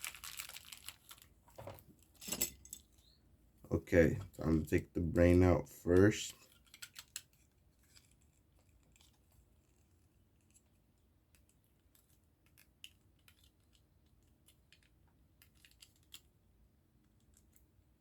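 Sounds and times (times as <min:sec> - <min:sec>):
plastic parts clicking: 0:06.4 - 0:09.1.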